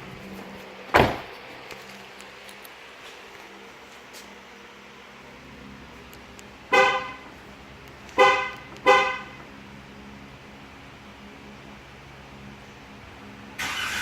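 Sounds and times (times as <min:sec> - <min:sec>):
car horn chirping: 0:06.7 - 0:07.3, 0:08.2 - 0:09.4.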